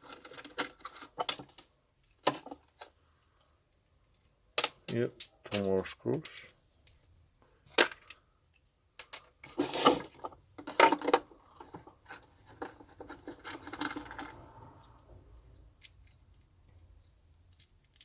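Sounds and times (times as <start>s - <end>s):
plastic parts clattering: 0.0s - 3.0s, 4.1s - 7.0s, 7.7s - 14.7s, 15.8s - 18.0s
plastic scraping and rubbing: 9.4s - 17.2s.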